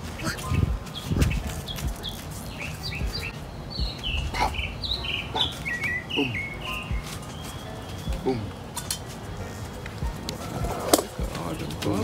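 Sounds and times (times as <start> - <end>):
songbird high chirps: 0.0 - 9.0
low thumps and rumble: 0.4 - 2.0, 3.0 - 5.5, 6.9 - 7.1.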